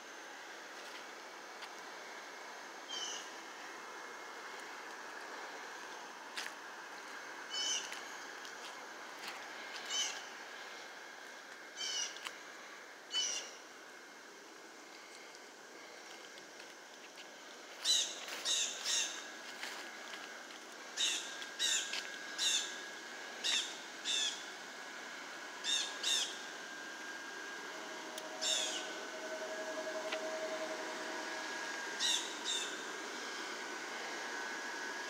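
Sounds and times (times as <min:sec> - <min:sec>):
faint steady hum: 0:00.0 - 0:35.0
bird sharp calls: 0:28.4 - 0:29.0.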